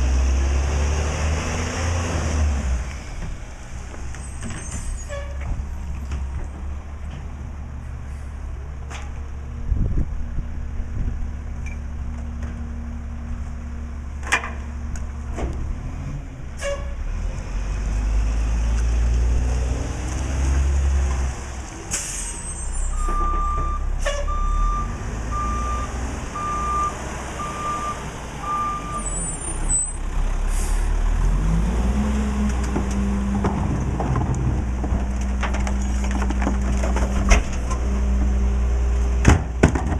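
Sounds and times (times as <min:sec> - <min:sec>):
garbage truck diesel engine: 0:00.0 - 0:39.9
reversing alarm beeping: 0:22.9 - 0:29.3.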